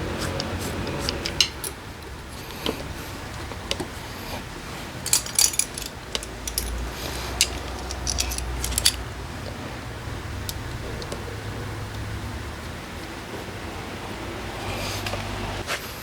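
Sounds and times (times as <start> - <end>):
metal tools clinking: 0.3 - 1.8, 3.7 - 9.2.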